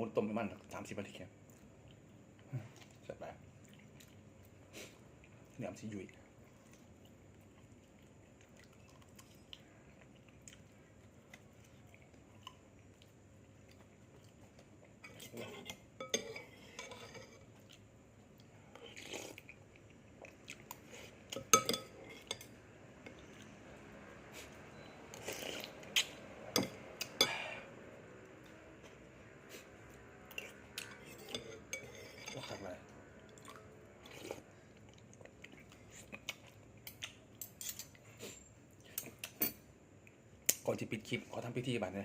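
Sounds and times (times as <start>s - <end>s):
utensils clinking against dishes: 15.0s - 17.4s, 21.3s - 22.5s, 30.8s - 32.8s, 36.9s - 38.0s.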